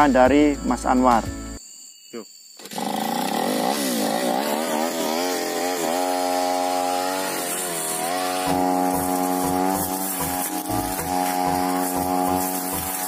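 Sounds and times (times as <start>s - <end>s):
brush cutter engine revving: 2.6s - 13.0s.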